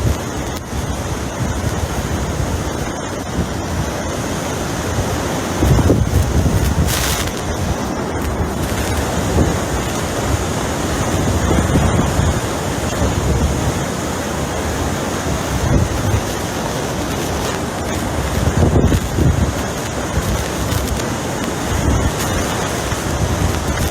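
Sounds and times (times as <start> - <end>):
rush of wind noise: 0.0 - 23.9
wind gusts on microphone: 0.0 - 23.9.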